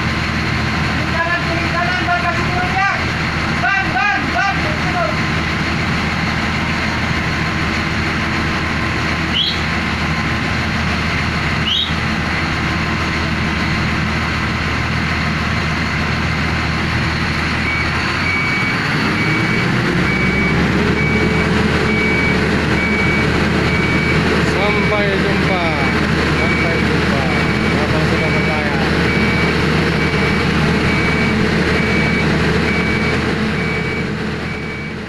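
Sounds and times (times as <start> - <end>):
diesel engine running: 0.0 - 35.0
short rising squeaks: 9.3 - 9.7
repeating warning beep: 17.6 - 35.0.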